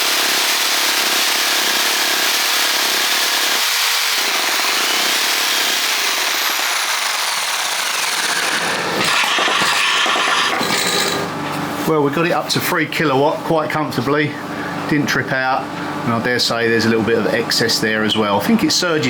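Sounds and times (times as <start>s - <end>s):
jigsaw running: 0.0s - 11.4s
demolition hammer hammering: 4.2s - 11.4s.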